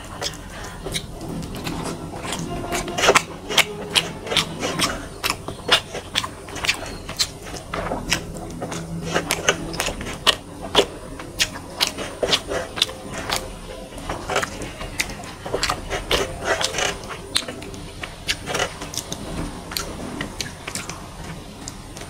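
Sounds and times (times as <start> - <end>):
wet chewing and lip-smacking: 0.0 - 22.0.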